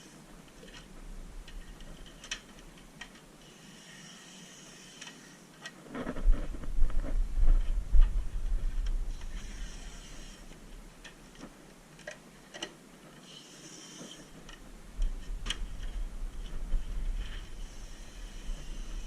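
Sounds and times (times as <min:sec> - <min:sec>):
low rumble: 0:06.1 - 0:09.3, 0:14.6 - 0:19.0
faint hissing sprays: 0:09.1 - 0:10.6, 0:17.1 - 0:19.0.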